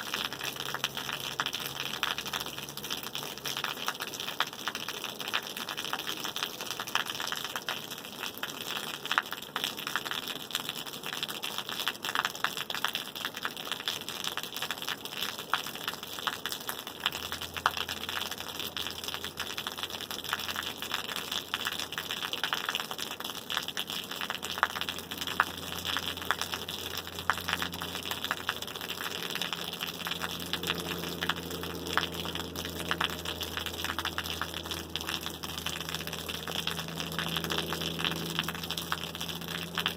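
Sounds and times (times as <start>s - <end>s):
rain falling: 0.0s - 39.9s
low steady hum: 23.3s - 39.9s.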